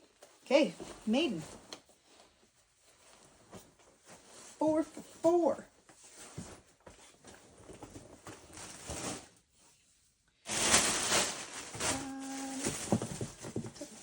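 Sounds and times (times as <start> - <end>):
clothing rustling: 0.0 - 14.0
packaging rustling: 10.5 - 14.0.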